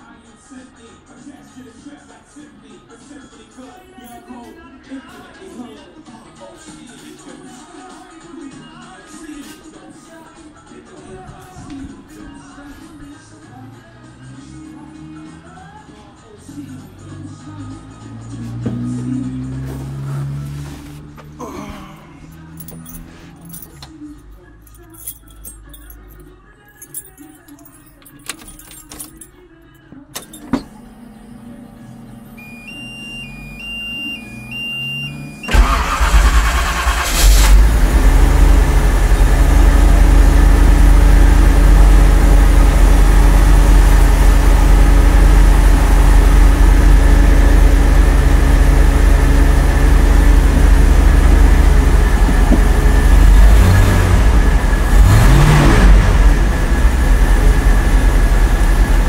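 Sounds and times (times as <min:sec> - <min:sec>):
car engine starting and idling: 0:12.2 - 0:24.6, 0:30.2 - 0:59.0
engine revving: 0:16.9 - 0:21.4, 0:33.2 - 0:59.0
pulsing electronic beep: 0:32.4 - 0:35.5.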